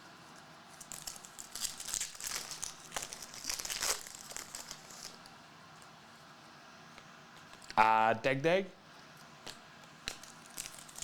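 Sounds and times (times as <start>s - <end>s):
wrapper crinkling and tearing: 0.7s - 5.3s, 10.1s - 11.0s.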